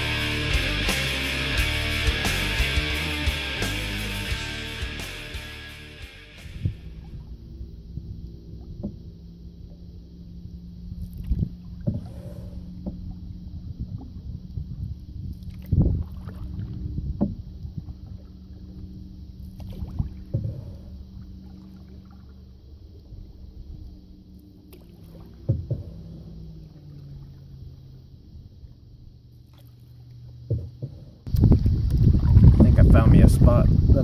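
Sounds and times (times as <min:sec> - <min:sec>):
paddle strokes splashing water: 0:00.0 - 0:33.1
low rumble: 0:00.0 - 0:34.0
thuds on canoe: 0:11.8 - 0:13.1, 0:17.1 - 0:17.5, 0:19.8 - 0:20.8, 0:25.2 - 0:26.2, 0:30.4 - 0:31.6.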